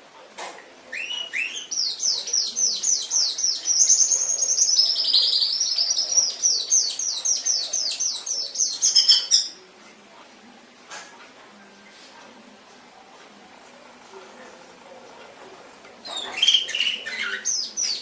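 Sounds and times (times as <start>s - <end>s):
canary singing: 0.9s - 9.7s, 16.0s - 18.0s.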